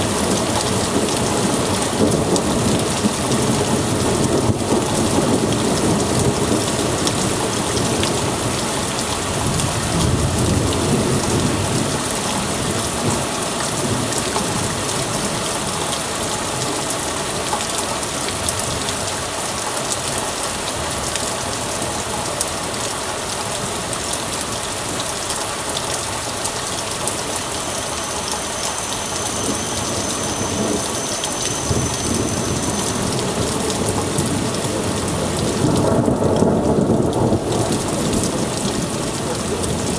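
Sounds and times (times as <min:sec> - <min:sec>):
heavy rain pouring: 0:00.0 - 0:39.9
thunder rumbling: 0:26.8 - 0:39.2.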